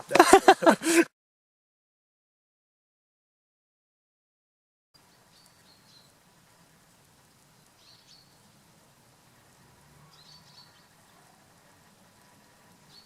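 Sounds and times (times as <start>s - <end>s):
low steady hiss: 0.0s - 1.0s, 5.0s - 13.0s
birds chirping: 5.0s - 13.0s.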